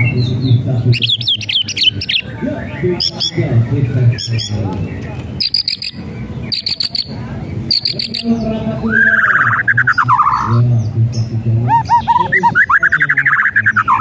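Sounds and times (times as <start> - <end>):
fast warbling bird trill: 1.0 - 3.5, 5.4 - 10.6, 11.6 - 14.0
dry rattling bird calls: 3.0 - 10.6.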